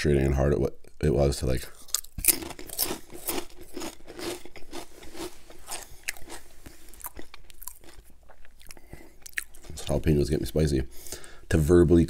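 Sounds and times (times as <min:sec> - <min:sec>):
potato chip crunching: 0:01.8 - 0:10.2
wet mouth sounds: 0:01.9 - 0:09.8.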